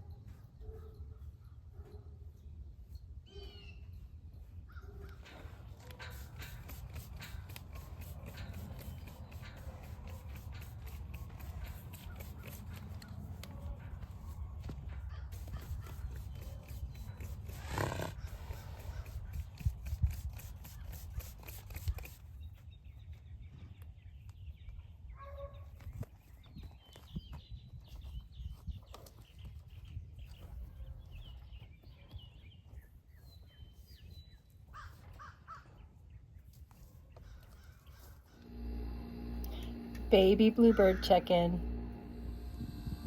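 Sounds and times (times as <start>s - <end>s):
rapid clicking: 6.0s - 13.2s
low rumble: 41.1s - 43.0s.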